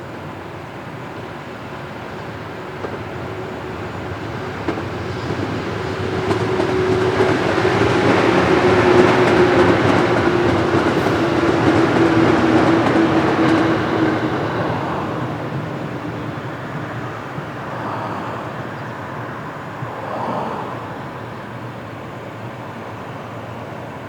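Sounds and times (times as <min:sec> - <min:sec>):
freight train passing: 0:00.0 - 0:24.0
locomotive hum: 0:00.1 - 0:24.0.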